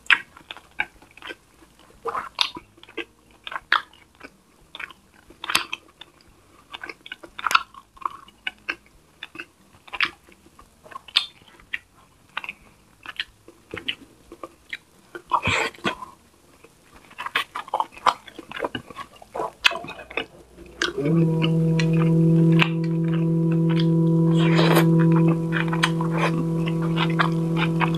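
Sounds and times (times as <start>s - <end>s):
chewing and mouth smacks: 0.1s - 1.4s, 2.0s - 21.0s.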